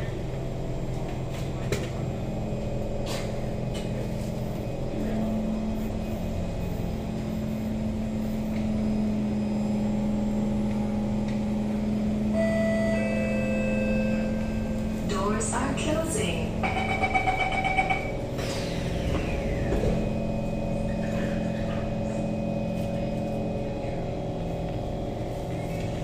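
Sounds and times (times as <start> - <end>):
train carriage electrical hum: 0.0 - 26.0.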